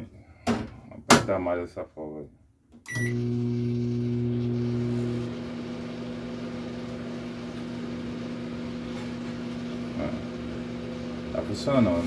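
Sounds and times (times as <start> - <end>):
microwave oven humming: 2.9 - 12.0.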